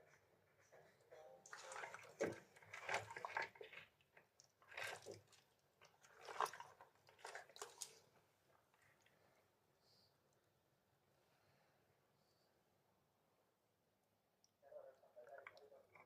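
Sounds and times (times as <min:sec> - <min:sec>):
wet squelching and clicking: 0:01.5 - 0:09.2.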